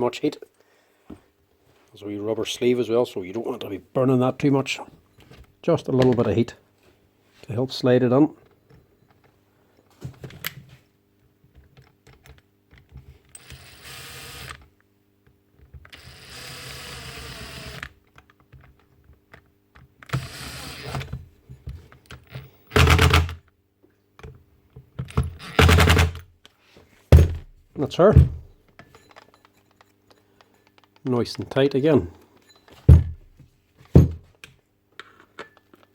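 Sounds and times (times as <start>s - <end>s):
clicks and rattles of parts: 20.9s - 23.5s, 28.6s - 31.1s
loud knocks: 27.1s - 27.5s, 28.1s - 28.5s, 32.9s - 33.3s, 34.0s - 34.2s.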